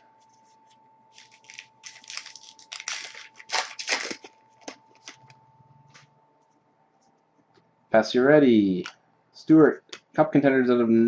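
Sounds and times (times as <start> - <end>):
trading cards rustling: 0.2 - 6.0.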